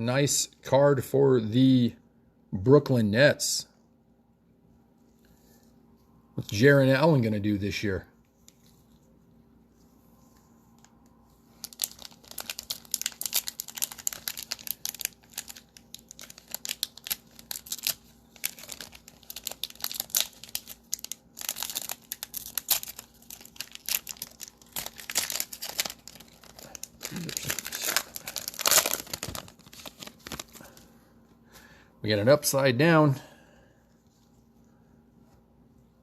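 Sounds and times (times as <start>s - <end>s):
wrapper crinkling: 10.8s - 30.8s
wrapper ripping: 11.5s - 30.8s.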